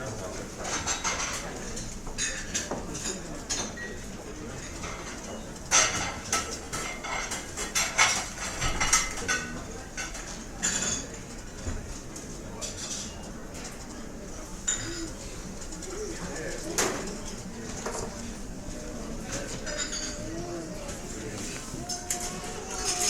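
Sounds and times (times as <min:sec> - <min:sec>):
restaurant background din: 0:00.0 - 0:23.0
cutlery and dishes clinking: 0:04.6 - 0:11.6, 0:18.9 - 0:23.0.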